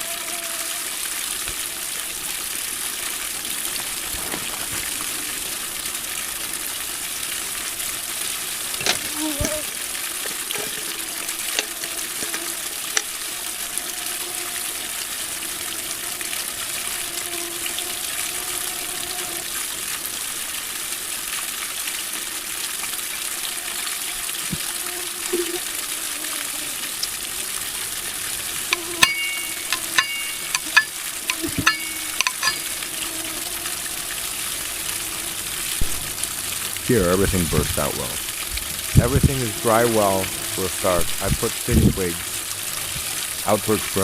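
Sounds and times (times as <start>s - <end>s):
campfire crackling and hissing: 0.0s - 44.0s.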